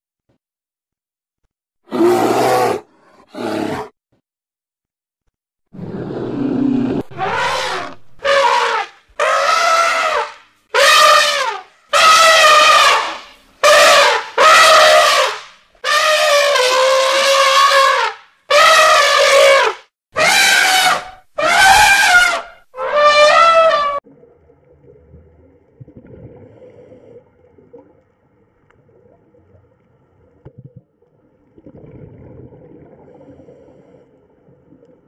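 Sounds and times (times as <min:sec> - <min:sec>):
elephant trumpeting: 0:06.9 - 0:24.0.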